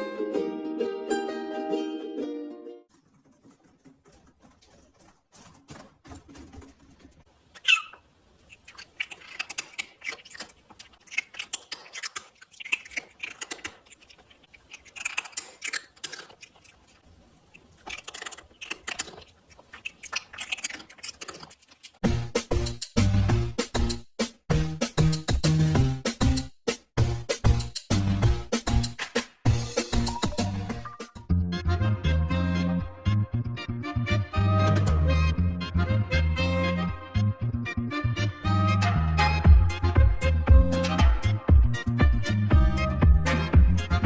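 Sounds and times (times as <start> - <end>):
small animals scuffling and scratching: 2.9 - 22.0
animal squeak: 7.6 - 9.3.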